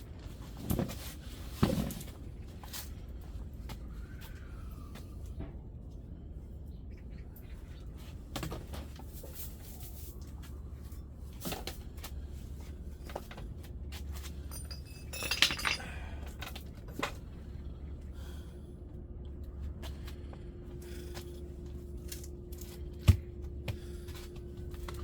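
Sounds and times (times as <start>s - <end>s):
steady low hum: 0.0s - 25.0s
hard objects clinking: 14.4s - 16.2s.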